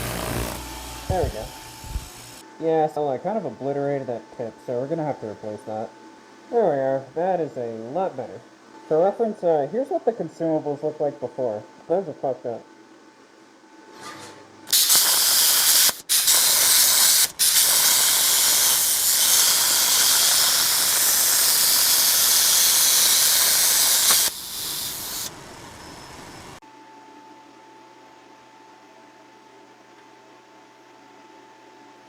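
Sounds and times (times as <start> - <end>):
plasma cutter torch hissing: 0.0 - 2.4, 14.7 - 26.6.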